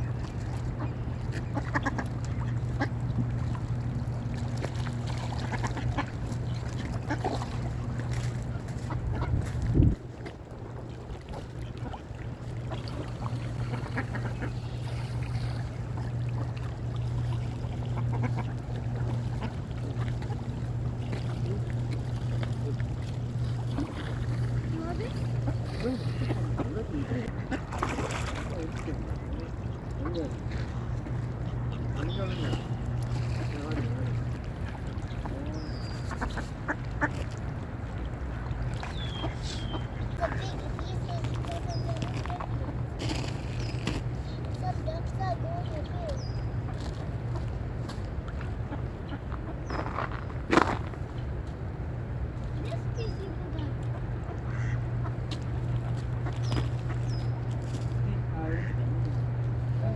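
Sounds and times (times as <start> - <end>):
waterfowl calling: 0.2 - 9.6, 11.2 - 37.3, 38.8 - 42.8, 53.8 - 57.7, 58.4 - 59.9
ducks quacking: 0.6 - 3.5, 5.1 - 9.6, 11.3 - 34.3, 35.2 - 37.3, 38.8 - 42.8, 53.0 - 57.4, 58.3 - 59.0.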